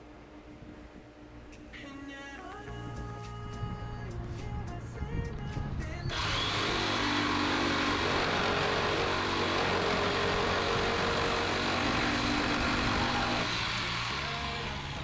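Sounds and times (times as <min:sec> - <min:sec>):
power tool hissing and humming: 0:06.1 - 0:15.0.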